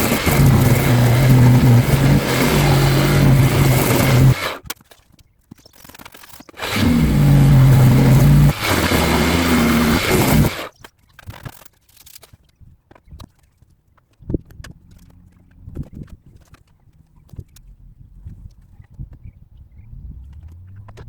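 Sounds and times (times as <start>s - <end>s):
power tool motor running: 0.0s - 4.6s, 6.6s - 10.7s.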